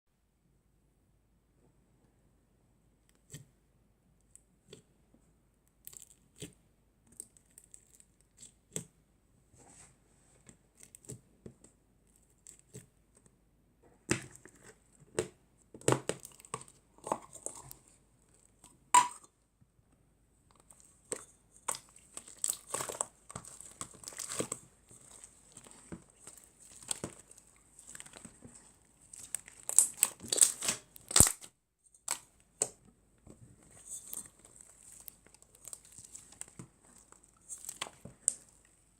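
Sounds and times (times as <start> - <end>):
plastic packaging crinkling and tearing: 21.7 - 32.3, 33.8 - 38.5.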